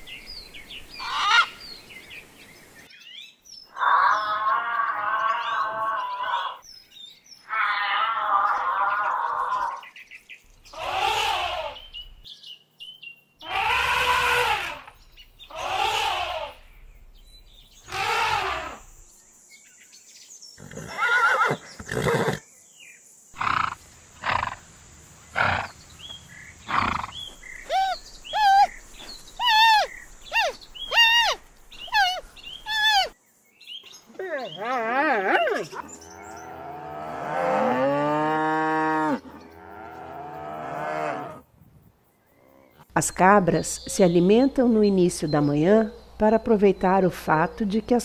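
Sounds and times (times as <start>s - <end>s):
birds chirping: 0.0s - 41.4s, 42.1s - 48.0s
horse neighing: 10.7s - 11.8s, 13.4s - 14.9s, 15.5s - 16.6s, 17.9s - 18.9s, 20.6s - 22.4s, 25.3s - 25.8s, 26.6s - 28.8s, 29.4s - 33.1s.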